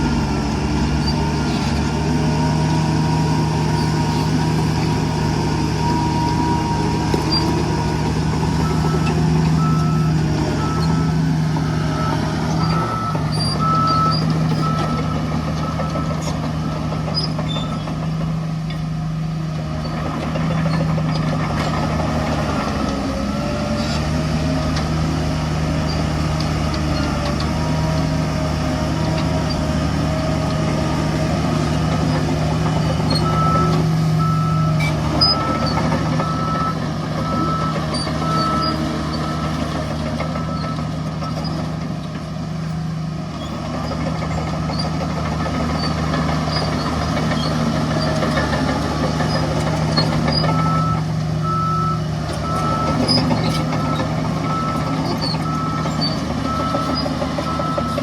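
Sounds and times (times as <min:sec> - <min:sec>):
heavy diesel machinery running: 0:00.0 - 0:58.0
reversing alarm beeping: 0:02.2 - 0:17.8, 0:33.0 - 0:39.7, 0:40.3 - 0:41.4, 0:50.4 - 0:58.0.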